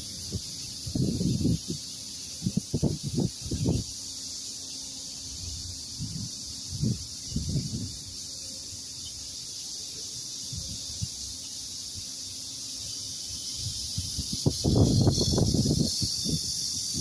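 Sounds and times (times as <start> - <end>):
cicadas droning: 0.0 - 17.0.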